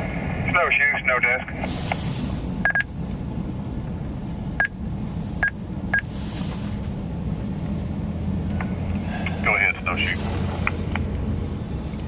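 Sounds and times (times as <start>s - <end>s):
vehicle rumble inside cab: 0.0s - 12.0s
short electronic beeps: 2.6s - 2.9s.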